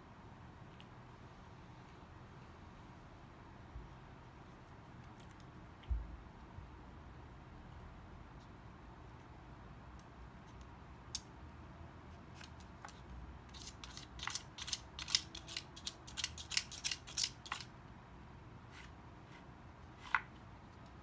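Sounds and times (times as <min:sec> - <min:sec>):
wooden tiles clicking and clacking: 0:12.6 - 0:17.7.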